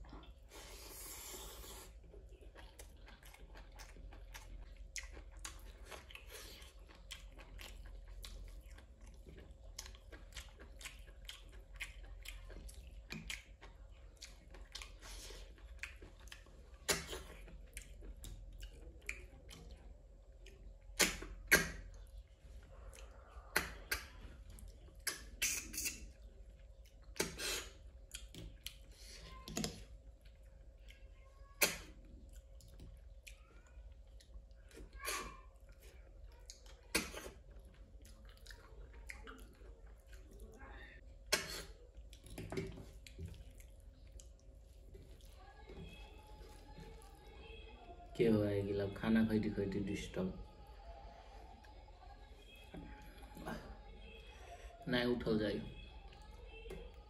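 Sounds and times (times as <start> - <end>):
person chewing: 0.0 - 45.4.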